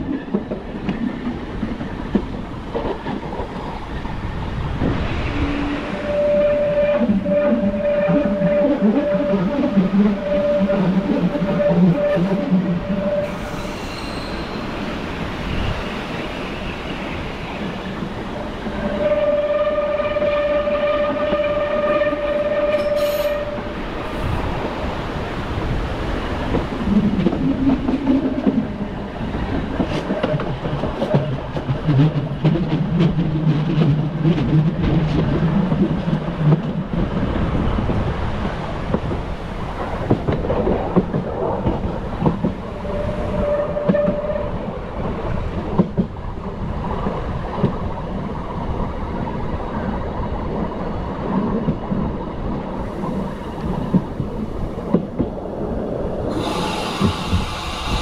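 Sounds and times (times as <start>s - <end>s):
train wheels clicking over rail joints: 24.6s - 47.9s, 53.0s - 58.0s.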